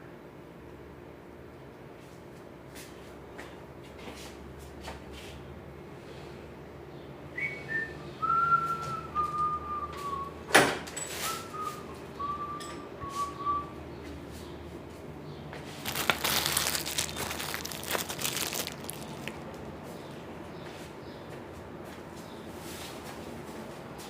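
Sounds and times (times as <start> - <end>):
person whistling a tune: 7.4 - 10.4, 11.2 - 13.8.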